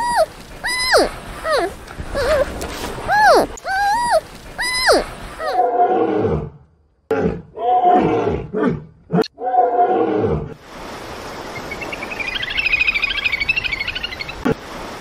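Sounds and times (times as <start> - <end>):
tiger growling roars: 5.6 - 10.6.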